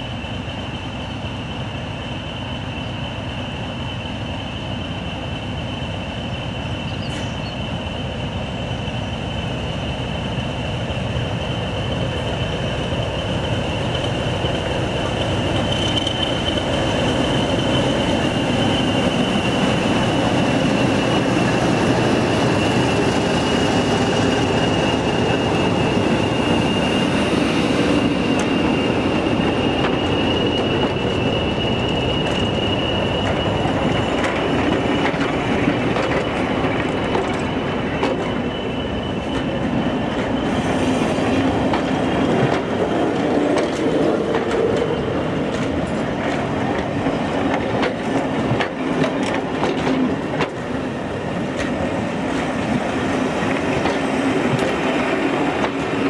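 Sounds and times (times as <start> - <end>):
diesel locomotive engine: 0.0 - 56.0
wheel clatter over rail joints: 11.5 - 25.9, 28.0 - 56.0
high-pitched wheel squeal: 13.4 - 44.8.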